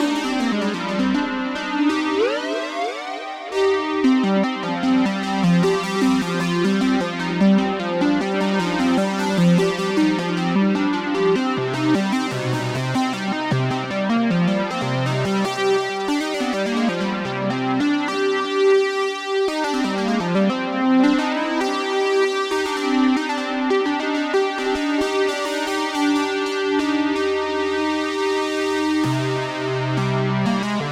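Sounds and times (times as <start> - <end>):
synthesizer stepped notes: 0.4 - 5.0.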